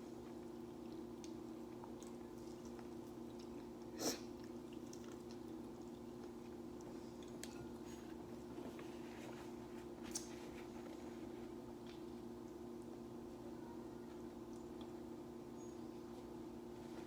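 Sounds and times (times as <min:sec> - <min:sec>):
steady low hum: 0:00.0 - 0:17.0
person chewing: 0:00.2 - 0:08.4.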